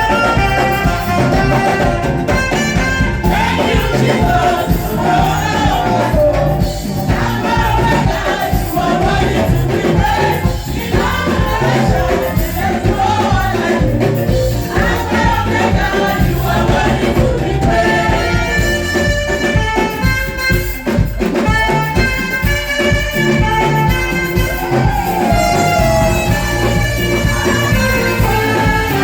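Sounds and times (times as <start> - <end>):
gospel band playing: 0.0 - 29.0
singing: 3.2 - 19.1.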